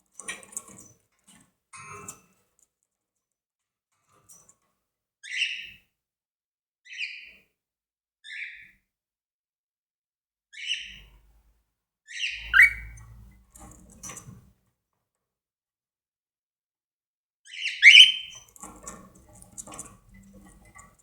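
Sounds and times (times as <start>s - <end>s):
cockatiel harsh chirping calls: 12.1s - 12.9s, 17.8s - 18.3s.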